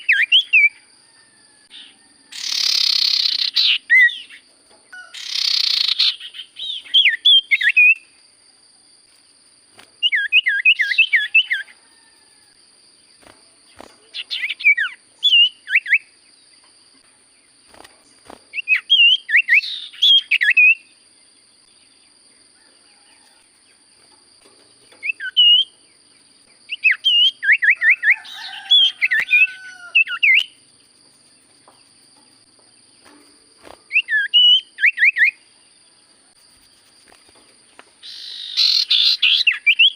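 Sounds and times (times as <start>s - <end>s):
bird chirping whistled notes: 2.4s - 8.1s, 10.0s - 11.7s, 14.1s - 16.1s, 18.5s - 20.9s, 25.0s - 25.7s, 26.7s - 30.6s, 33.9s - 35.4s, 38.0s - 39.9s.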